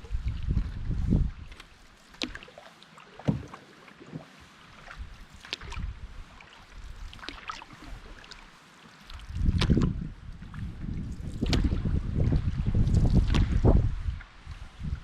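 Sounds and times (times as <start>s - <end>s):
paddle strokes splashing: 0.0s - 15.0s
sharp knocks on canoe: 3.2s - 3.6s.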